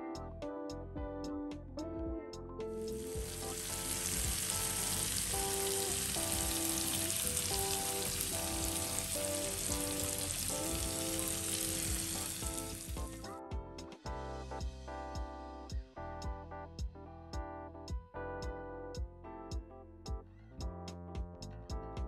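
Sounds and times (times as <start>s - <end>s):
background music with sustained notes: 2.6s - 16.2s
food sizzling in oil: 3.0s - 13.2s.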